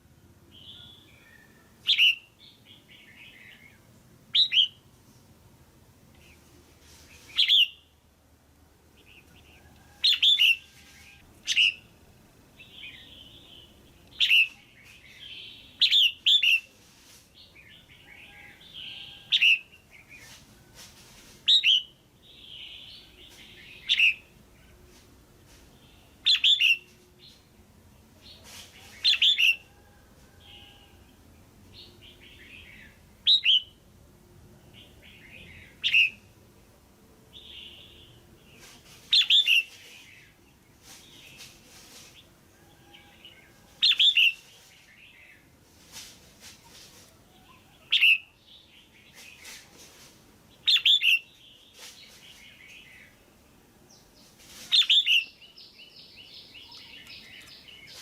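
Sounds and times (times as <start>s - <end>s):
soft bird chatter: 6.1s - 7.9s, 12.6s - 33.8s, 37.3s - 58.0s.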